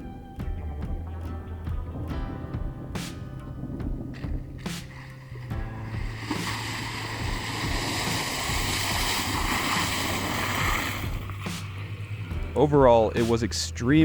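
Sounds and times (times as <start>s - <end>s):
water rushing and splashing: 4.1s - 13.4s.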